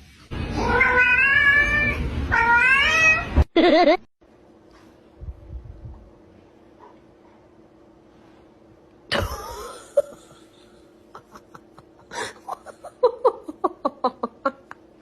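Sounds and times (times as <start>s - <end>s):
person laughing: 3.6s - 4.0s, 9.1s - 15.0s.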